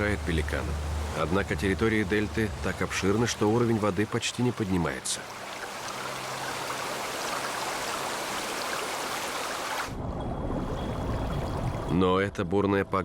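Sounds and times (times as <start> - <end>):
heavy rain hiss: 0.0 - 9.9.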